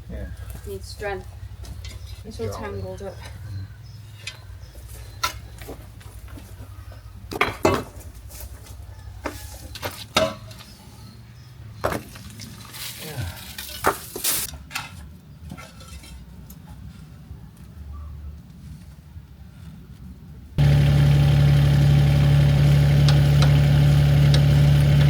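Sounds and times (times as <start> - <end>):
steady low hum: 20.6 - 25.0.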